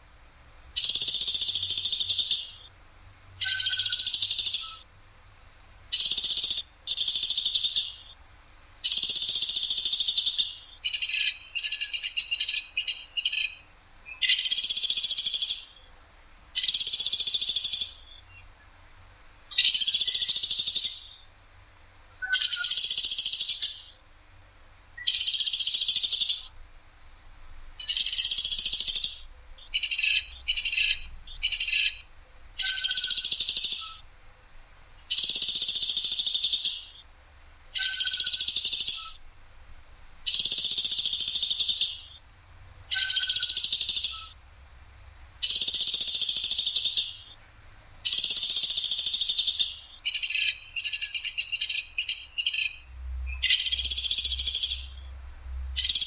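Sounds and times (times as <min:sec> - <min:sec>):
bird giving harsh calls: 0:27.8 - 0:34.1, 0:42.9 - 0:44.4.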